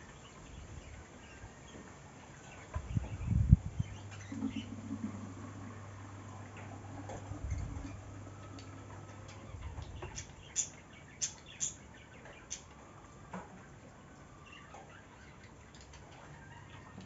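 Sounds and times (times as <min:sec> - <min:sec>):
low steady hum: 0:00.0 - 0:17.0
small birds chirping: 0:08.5 - 0:12.9.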